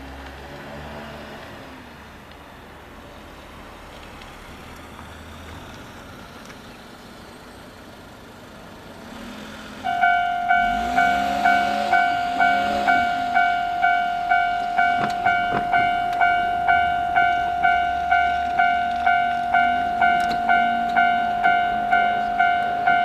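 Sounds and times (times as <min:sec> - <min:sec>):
low vehicle rumble: 0:00.0 - 0:23.0
level-crossing alarm bell: 0:09.9 - 0:23.0.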